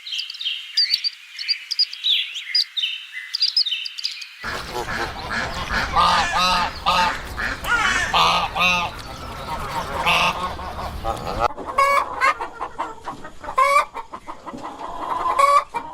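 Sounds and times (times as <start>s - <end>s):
background noise: 0.0s - 15.9s
chickens clucking: 4.4s - 15.9s.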